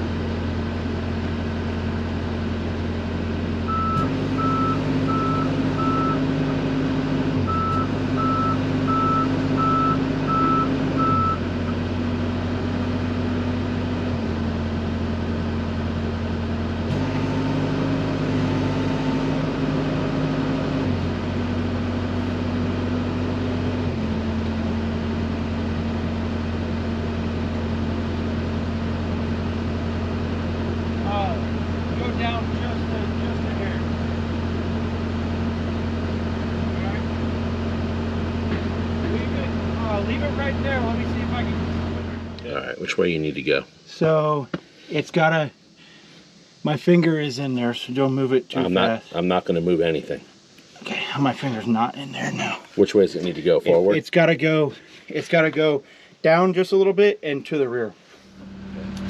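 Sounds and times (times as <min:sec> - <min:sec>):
excavator diesel engine running: 0:00.0 - 0:43.2, 0:58.2 - 0:59.0
alarm beeping: 0:03.7 - 0:06.3, 0:07.5 - 0:11.4, 0:58.4 - 0:59.0.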